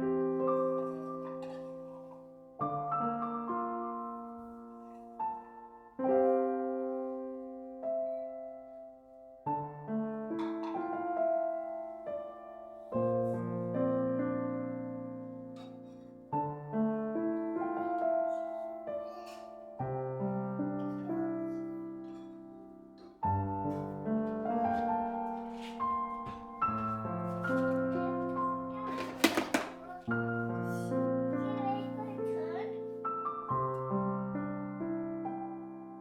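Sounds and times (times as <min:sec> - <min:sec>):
slow gentle piano music: 0:00.0 - 0:36.0.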